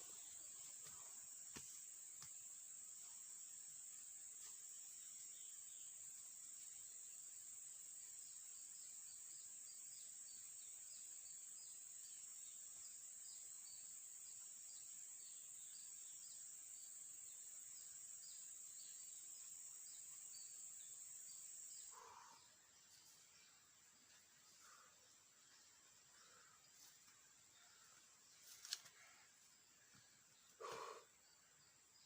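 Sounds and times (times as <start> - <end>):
crickets chirring: 0.0 - 32.0
low animal call: 30.6 - 31.1.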